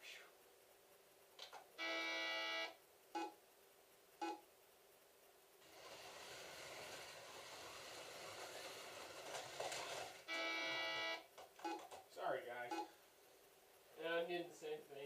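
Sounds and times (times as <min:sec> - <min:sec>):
electronic beeps: 0:04.2 - 0:04.4, 0:12.7 - 0:12.9.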